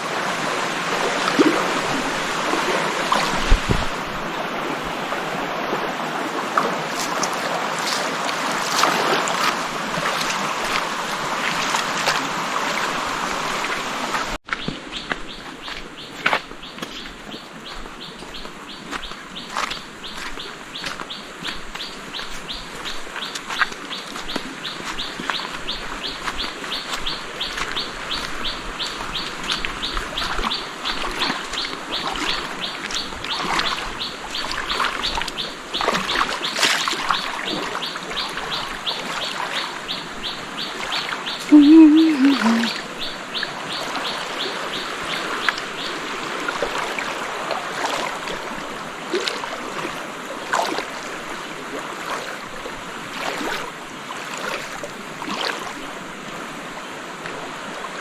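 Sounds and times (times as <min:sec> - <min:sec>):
repeated chirping call: 0:41.5 - 0:42.8.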